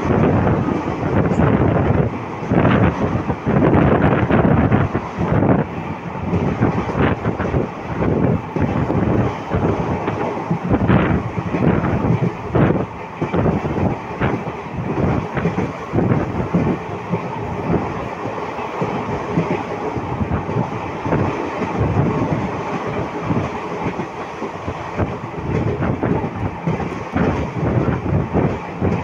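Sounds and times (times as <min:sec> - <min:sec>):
train wheels rumbling on rail: 0:00.0 - 0:29.0
clickety-clack knocks: 0:06.3 - 0:29.0.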